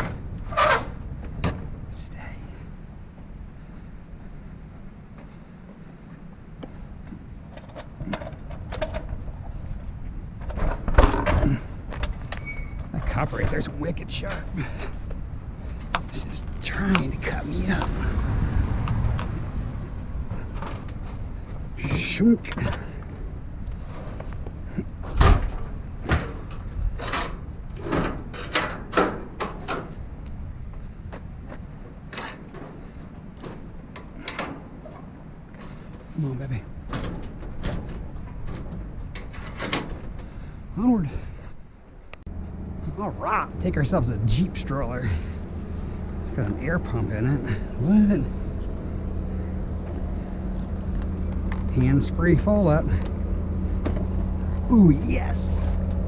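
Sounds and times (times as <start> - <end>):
steady low rumble: 0.0 - 56.0
scrap metal knocks and clunks: 10.4 - 14.9, 25.0 - 30.0, 36.8 - 40.5.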